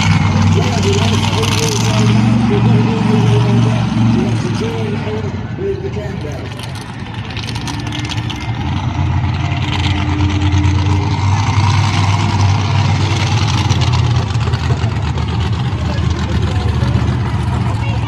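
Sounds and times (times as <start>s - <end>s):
kart engines droning: 0.0s - 18.0s.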